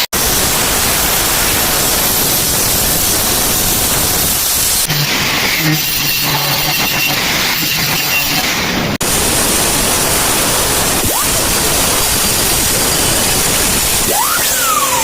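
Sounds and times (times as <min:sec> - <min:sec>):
angle grinder cutting tile: 0:10.0 - 0:15.0.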